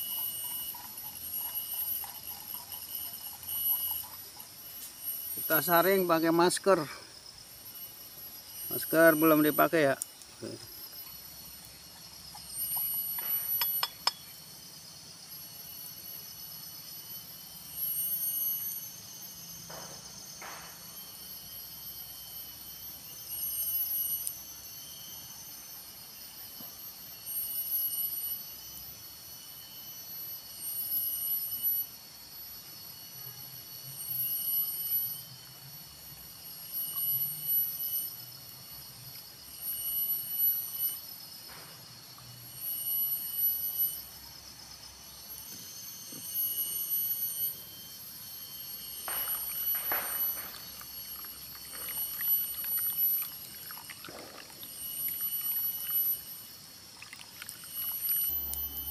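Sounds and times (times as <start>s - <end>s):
forest insects buzzing: 0.0s - 58.9s.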